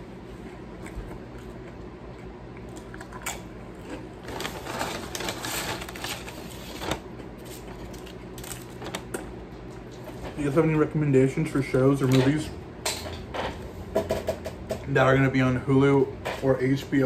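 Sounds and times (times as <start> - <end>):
steady low hum: 0.0 - 17.0
chewing with clicks and crinkles: 0.2 - 4.7.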